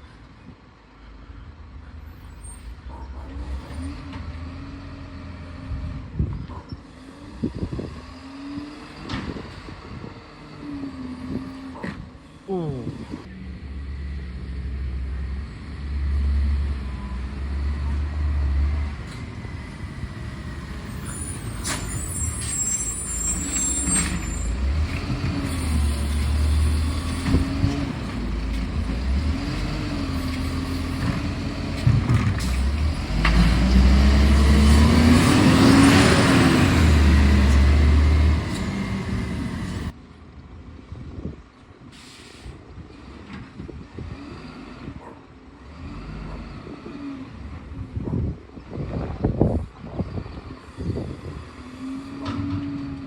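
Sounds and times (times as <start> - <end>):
garbage truck engine revving: 2.8 - 40.0
sharp air hiss: 41.9 - 42.6.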